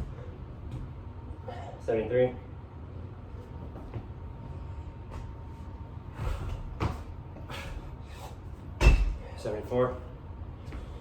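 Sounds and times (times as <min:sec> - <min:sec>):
hands and feet thudding on floor: 0:06.2 - 0:07.1
breathy exertion sounds: 0:07.4 - 0:08.5.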